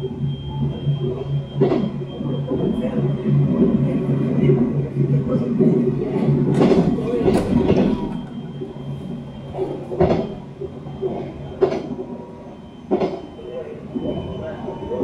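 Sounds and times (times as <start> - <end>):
train running noise: 0.0 - 15.0
people's voices: 2.1 - 8.5, 13.2 - 15.0.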